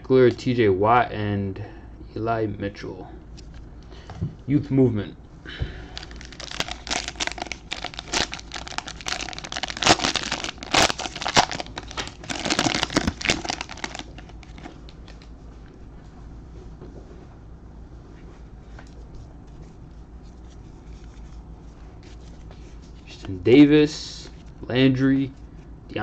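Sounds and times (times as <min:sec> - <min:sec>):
plastic wrapper tearing and crinkling: 0:06.0 - 0:15.3
faint handling sounds: 0:06.0 - 0:23.5.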